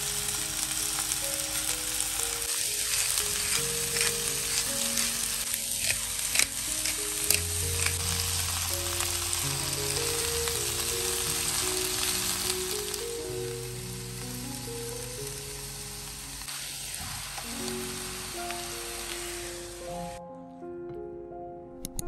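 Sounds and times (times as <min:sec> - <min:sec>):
vegetables sizzling in a frying pan: 0:00.0 - 0:20.2
soft background music: 0:00.0 - 0:22.0.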